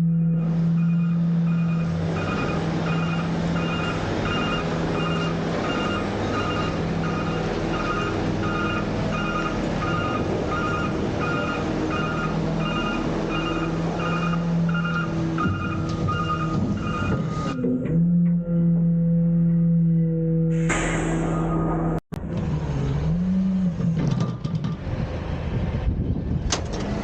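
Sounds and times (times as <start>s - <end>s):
truck reversing alarm beeping: 0.0s - 20.5s
diesel engine running: 0.0s - 27.0s.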